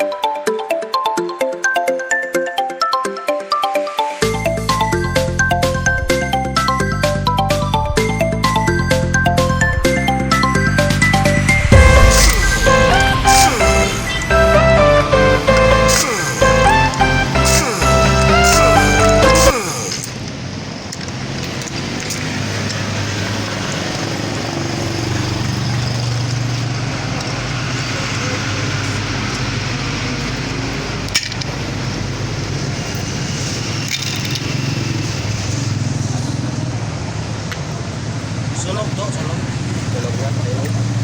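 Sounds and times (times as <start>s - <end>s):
indistinct voices: 10.5s - 20.1s.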